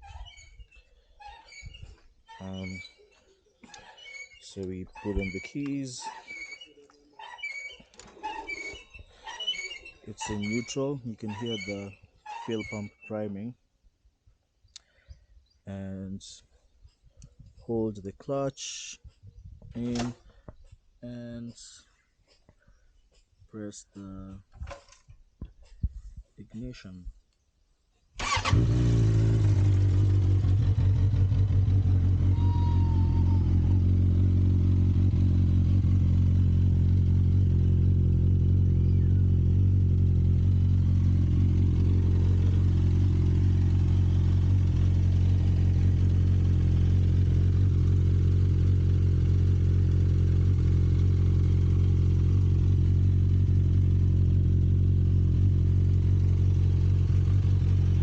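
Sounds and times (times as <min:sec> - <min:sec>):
motorcycle engine idling: 0:28.2 - 0:58.0.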